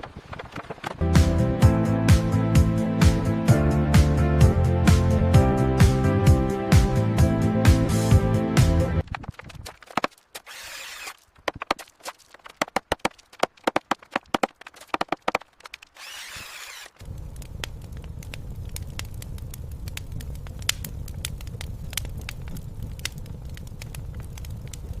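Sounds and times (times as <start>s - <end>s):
sharp crackles: 0.0s - 1.2s, 9.0s - 25.0s
sharp knocks and taps: 11.4s - 15.8s
low rumble: 17.0s - 25.0s.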